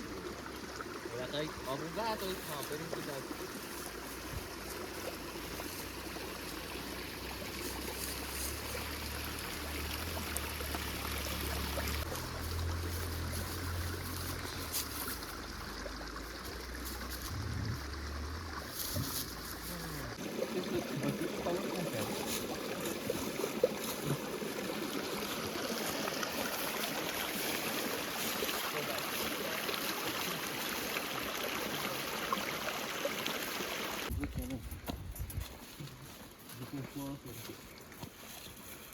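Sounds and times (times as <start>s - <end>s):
river water rushing: 0.0s - 34.1s
low rumble: 17.2s - 18.6s.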